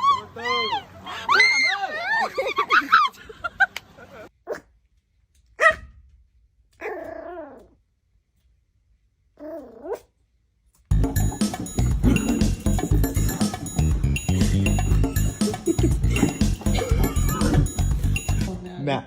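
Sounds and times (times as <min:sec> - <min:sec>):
dog barking: 0:04.5 - 0:04.7, 0:05.6 - 0:05.9
background music: 0:10.9 - 0:19.0.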